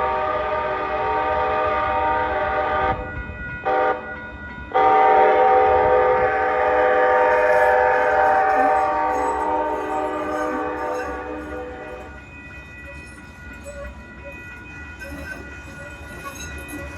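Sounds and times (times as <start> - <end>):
train horn chord: 0.0 - 4.1, 4.7 - 12.1.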